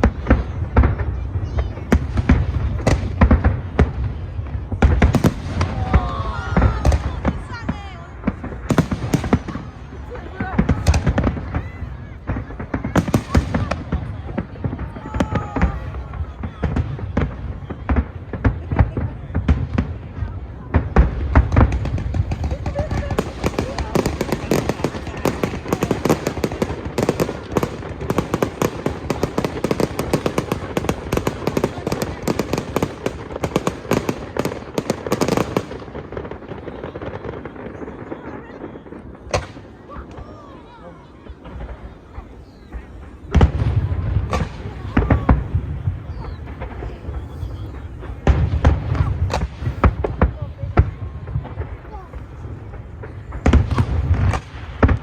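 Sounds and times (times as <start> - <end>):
fireworks bangs: 0.0 - 55.0
low rumble of explosions: 0.0 - 55.0.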